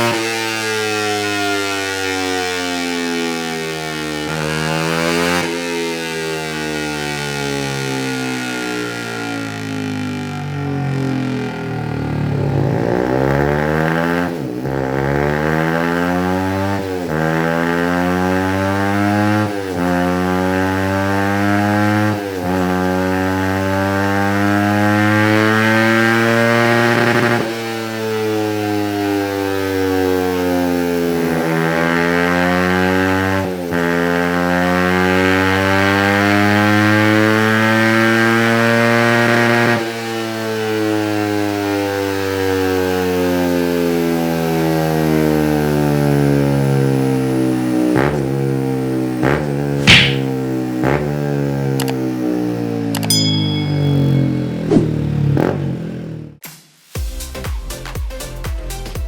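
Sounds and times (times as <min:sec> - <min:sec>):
motorcycle engine revving: 0:00.0 - 0:56.4.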